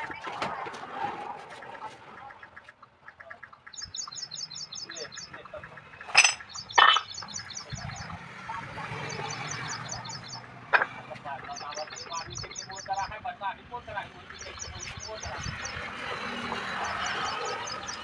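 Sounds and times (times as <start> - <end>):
bird chirping: 1.6 - 13.2, 14.0 - 18.0.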